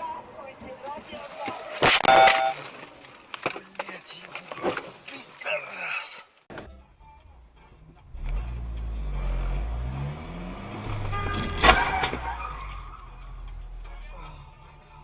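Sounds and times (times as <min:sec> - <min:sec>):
brief pitched sound: 0:02.0 - 0:02.6
car engine accelerating: 0:07.6 - 0:14.2.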